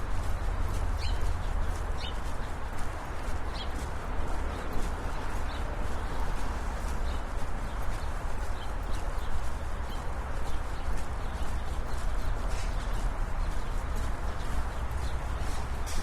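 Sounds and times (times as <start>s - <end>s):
brisk footsteps on sidewalk: 0.0s - 16.0s
road traffic rumble: 0.0s - 16.0s.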